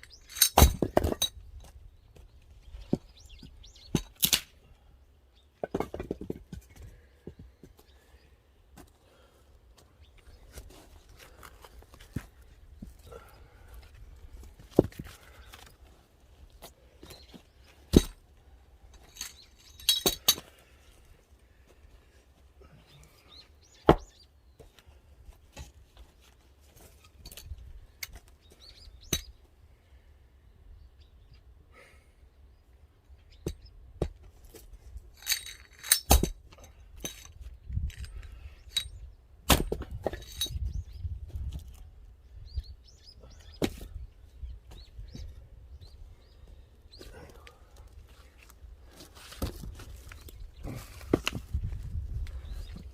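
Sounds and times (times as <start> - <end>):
split wood pieces clattering: 0.0 - 1.8, 3.9 - 4.5, 5.6 - 6.9, 17.9 - 18.2, 18.9 - 20.6, 34.5 - 40.7
axe striking wood: 0.5 - 1.2, 23.8 - 24.1, 36.0 - 36.4, 39.5 - 40.0.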